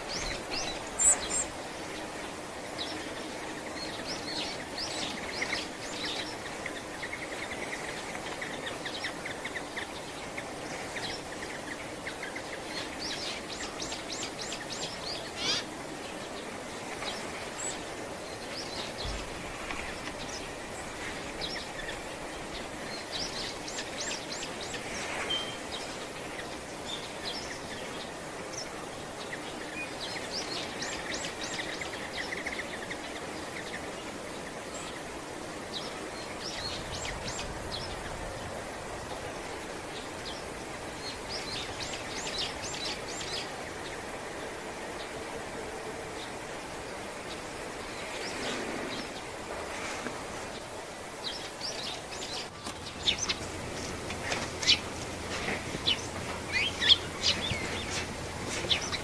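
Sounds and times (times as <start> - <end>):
background hiss: 0.0 - 59.0
small birds calling: 0.0 - 59.0.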